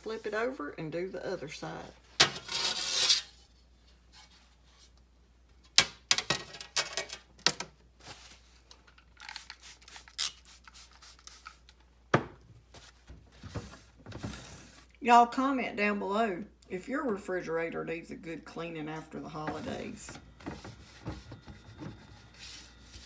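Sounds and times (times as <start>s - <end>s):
rubbing and scrubbing: 1.6s - 3.4s, 19.3s - 23.0s.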